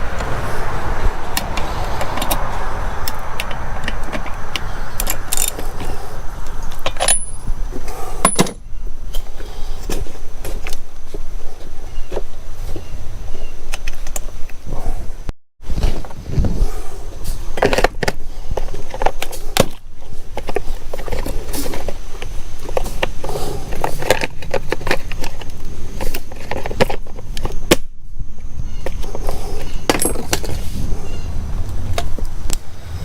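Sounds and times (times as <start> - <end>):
hand tools clicking and clinking: 3.0 - 6.0, 6.6 - 9.2.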